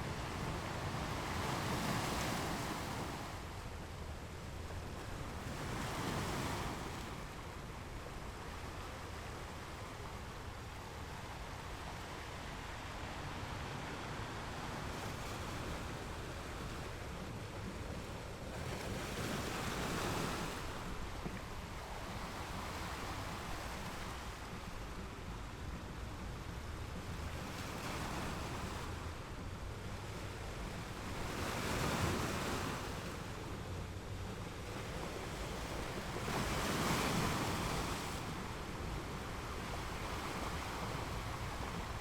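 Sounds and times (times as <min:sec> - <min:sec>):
waves breaking: 0:09.8 - 0:42.0.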